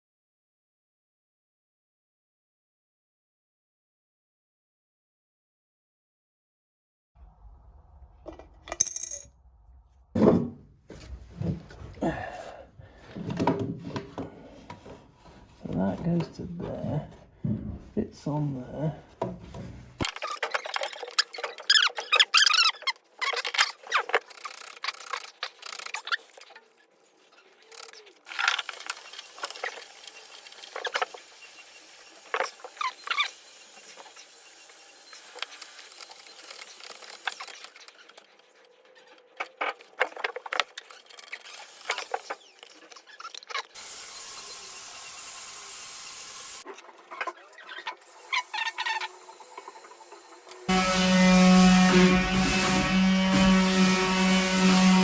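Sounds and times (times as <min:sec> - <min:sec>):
bath fittings clicking and squeaking: 0:20.0 - 0:26.6, 0:37.2 - 0:43.8.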